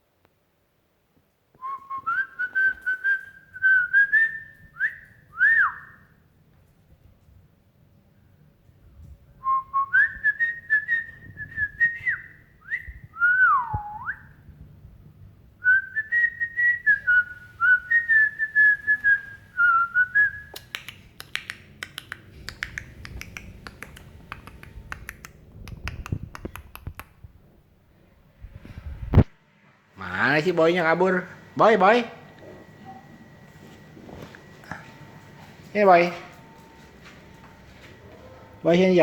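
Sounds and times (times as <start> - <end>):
person whistling: 1.6 - 6.0, 9.4 - 14.3, 15.6 - 20.6.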